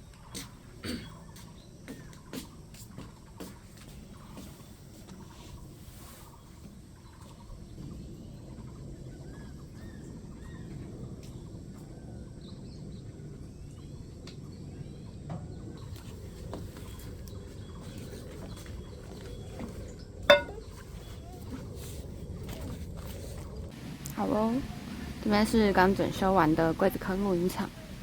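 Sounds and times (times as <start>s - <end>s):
small birds chirping: 0.0s - 22.3s.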